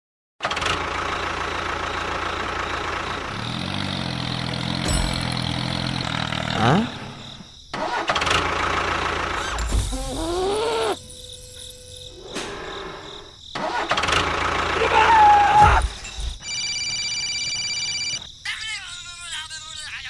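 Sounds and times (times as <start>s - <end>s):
engine running with rising whine: 0.6s - 7.2s.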